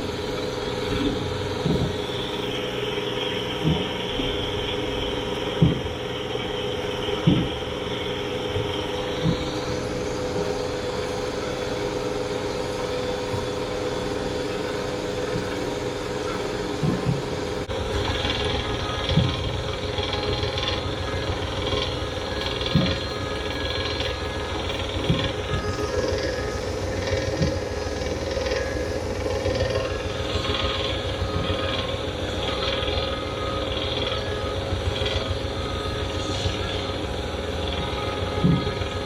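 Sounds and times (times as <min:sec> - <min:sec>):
boat engine running: 0:00.0 - 0:39.0
dull thumps: 0:05.5 - 0:06.0, 0:07.2 - 0:07.7.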